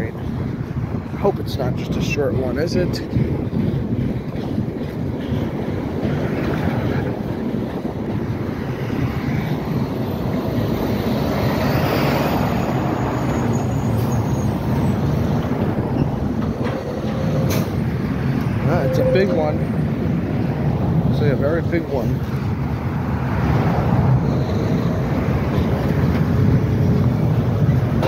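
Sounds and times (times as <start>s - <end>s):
freight train rumbling: 0.0s - 28.0s
street traffic passing: 0.0s - 28.0s
truck driving by: 5.8s - 21.1s.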